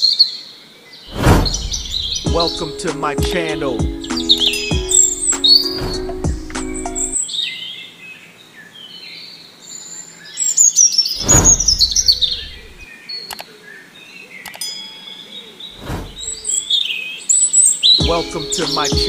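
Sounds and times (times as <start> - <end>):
birds chirping and twittering: 0.0 - 19.0
whoosh: 1.1 - 2.3, 5.7 - 6.1, 11.2 - 12.8, 15.8 - 16.6.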